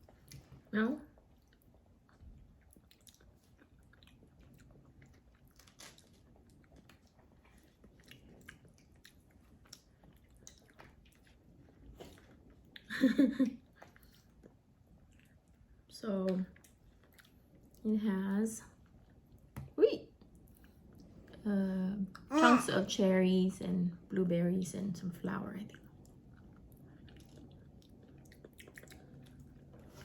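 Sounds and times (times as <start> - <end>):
close-miked chewing: 0.0 - 12.9, 13.5 - 17.9, 25.7 - 30.0.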